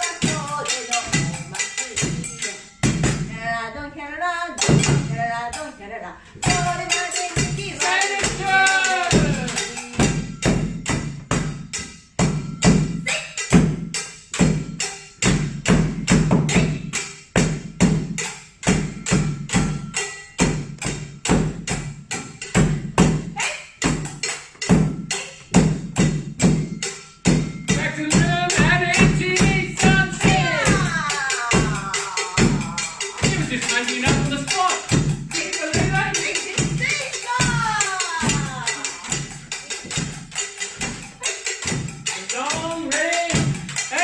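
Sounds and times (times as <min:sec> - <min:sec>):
drumming on pots and buckets: 0:00.0 - 0:03.6, 0:04.6 - 0:05.7, 0:06.4 - 0:44.0
person calling out: 0:23.4 - 0:23.8, 0:29.9 - 0:34.8, 0:35.4 - 0:39.3.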